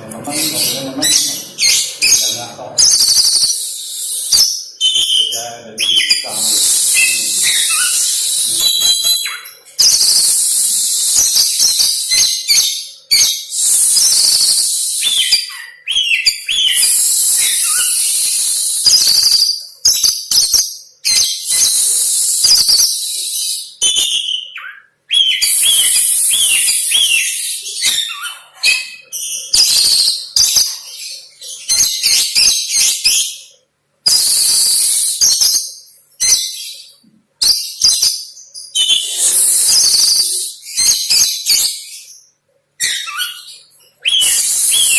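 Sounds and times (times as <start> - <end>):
songbird singing varied song: 0.0 - 33.5.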